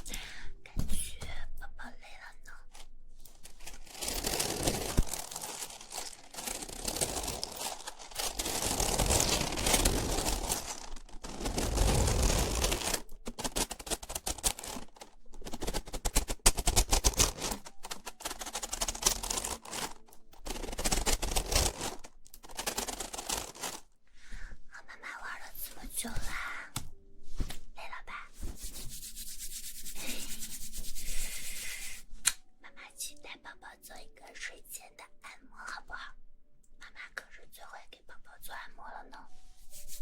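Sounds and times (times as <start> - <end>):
crinkly rustling and scraping: 2.7 - 24.0.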